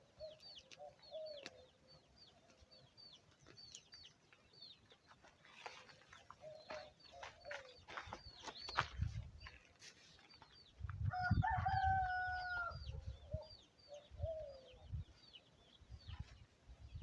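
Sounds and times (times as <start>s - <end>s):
small birds chirping: 0.0s - 17.0s
rooster crowing: 11.1s - 12.8s.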